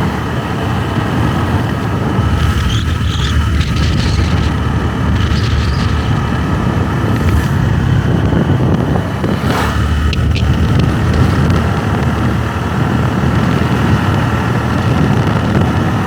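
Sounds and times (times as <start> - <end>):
motorbike engine running: 0.0 - 16.0
road and wind noise: 0.0 - 16.0
brief rising sound: 9.1 - 10.3.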